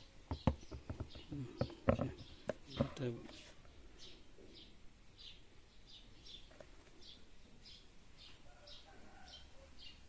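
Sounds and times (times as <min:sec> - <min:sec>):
background hiss: 0:00.0 - 0:10.0
small bird chirping: 0:00.0 - 0:10.0.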